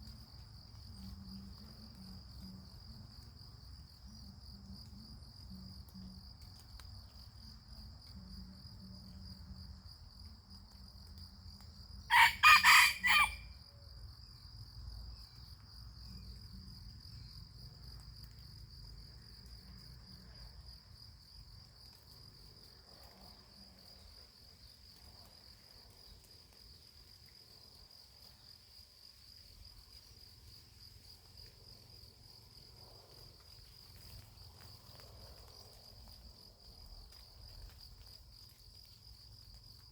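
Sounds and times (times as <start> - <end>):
crickets trilling: 0.0 - 39.9
rooster crowing: 12.1 - 13.6.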